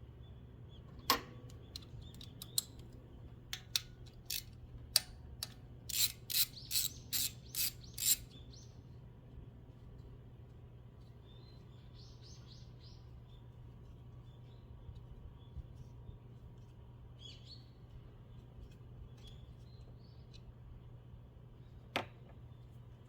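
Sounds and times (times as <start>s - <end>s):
ratchet wrench clicking: 3.7s - 8.3s.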